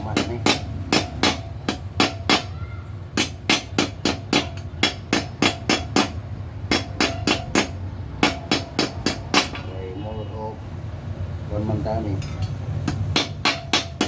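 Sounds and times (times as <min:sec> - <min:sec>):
hammer striking sheet metal: 0:00.0 - 0:02.5, 0:03.2 - 0:09.7, 0:12.3 - 0:14.0.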